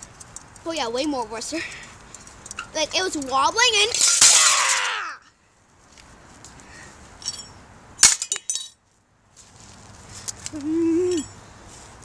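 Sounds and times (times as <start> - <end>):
ceiling fan parts being smashed: 3.8 - 5.0, 7.2 - 8.8.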